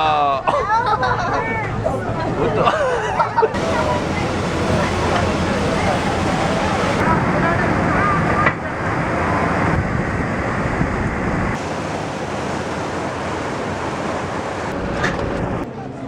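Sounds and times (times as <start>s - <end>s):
wind rushing over microphone: 3.5s - 11.6s.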